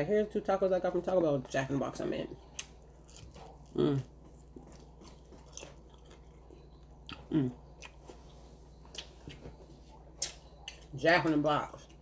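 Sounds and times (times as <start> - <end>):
person chewing: 2.4 - 11.0
person humming: 3.8 - 4.1, 7.3 - 7.6.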